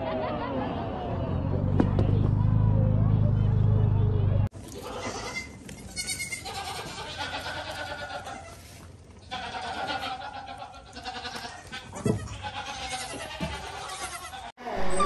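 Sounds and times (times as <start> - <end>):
goat kids bleating: 4.7 - 14.5.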